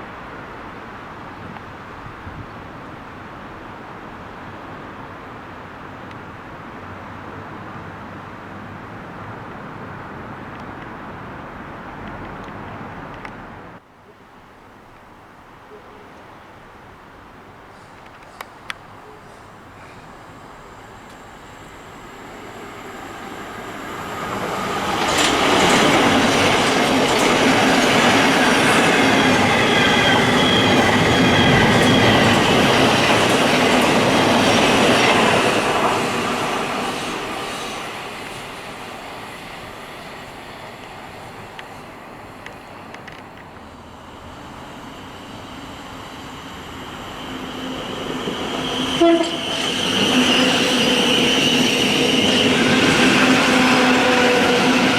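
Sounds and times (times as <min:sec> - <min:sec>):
train approaching: 0:17.6 - 0:54.9
train passing rumble: 0:17.6 - 0:54.9.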